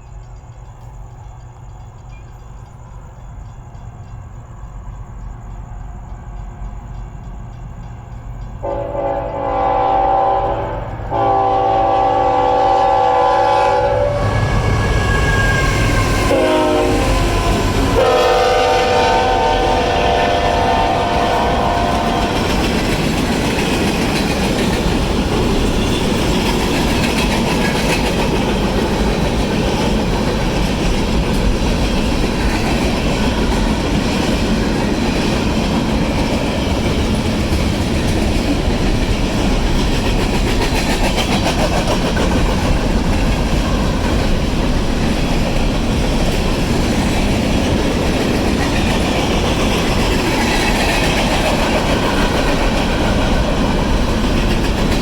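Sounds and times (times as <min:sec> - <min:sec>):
freight train rumbling past: 0:00.0 - 0:55.0
wheels clacking over rail joints: 0:14.2 - 0:55.0.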